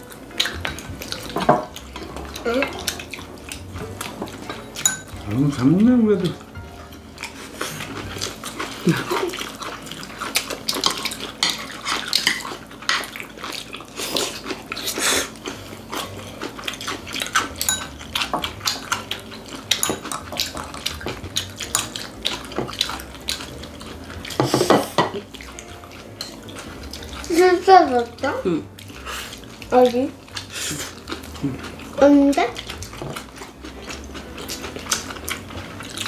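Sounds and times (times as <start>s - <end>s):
chewing: 0.0s - 36.0s
chopsticks clicking on plates: 17.2s - 23.5s.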